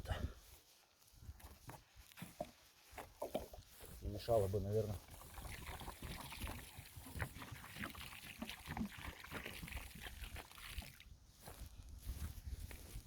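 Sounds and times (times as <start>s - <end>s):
water pouring from bottle: 4.9s - 11.1s
water splashing on ground: 5.0s - 11.1s.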